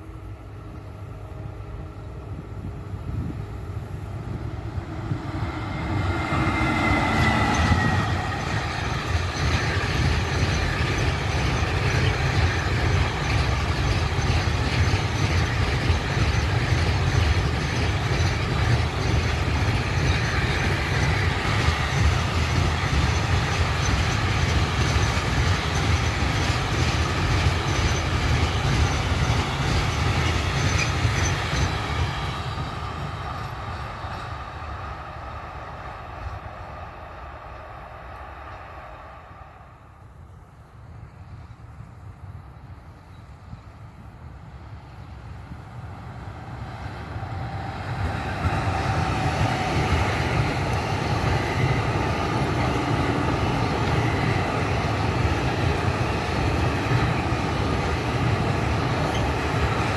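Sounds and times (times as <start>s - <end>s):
locomotive falling whine: 4.1s - 14.1s
wagon wheels rumbling on rails: 4.8s - 34.3s, 47.0s - 59.9s
wheel squeal: 5.3s - 31.9s, 58.8s - 59.9s.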